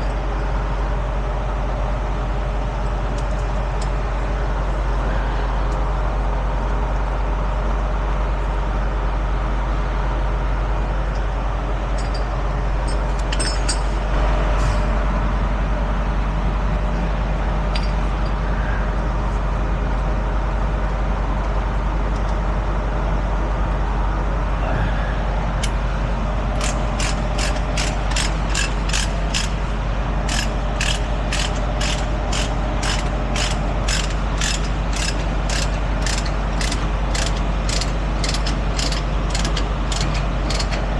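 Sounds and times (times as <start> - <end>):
truck engine idling: 25.3 - 40.9
regular metallic clicking: 26.6 - 29.6, 30.3 - 40.8.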